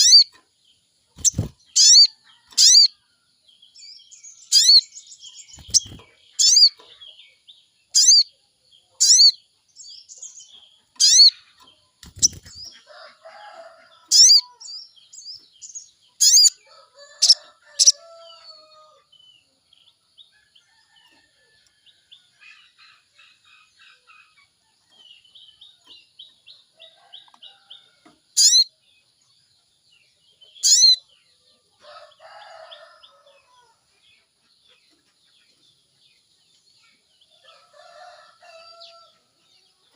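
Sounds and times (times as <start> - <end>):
soft bird twittering: 0.0 - 0.4, 1.2 - 3.0, 3.8 - 19.0, 28.4 - 28.7, 30.4 - 31.1.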